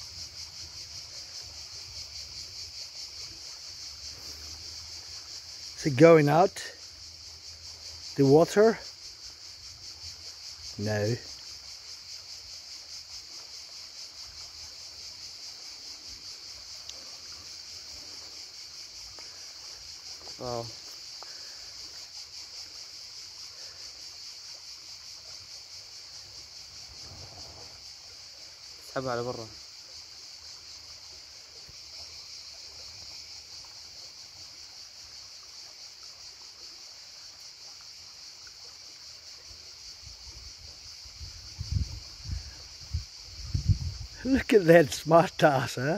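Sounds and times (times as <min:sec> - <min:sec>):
insect chorus: 0:00.0 - 0:45.9
river running: 0:00.0 - 0:45.9
wind rumble on microphone: 0:41.1 - 0:44.2.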